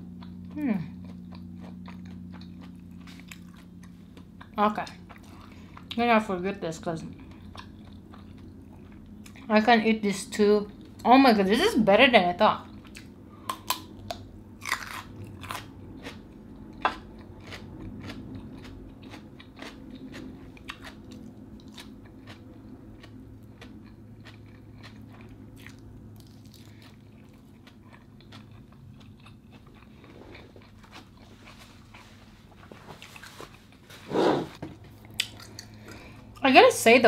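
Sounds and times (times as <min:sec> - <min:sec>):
soft chewing: 0:00.0 - 0:06.0, 0:07.0 - 0:09.5, 0:10.7 - 0:11.1, 0:12.6 - 0:34.0, 0:34.8 - 0:36.5
person crunching raw cucumber: 0:12.7 - 0:32.0.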